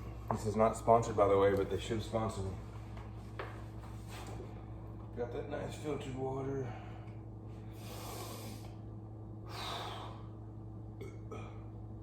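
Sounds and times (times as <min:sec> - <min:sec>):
steady low hum: 0:00.0 - 0:12.0
breathy exhalations: 0:06.7 - 0:08.8, 0:09.4 - 0:10.4.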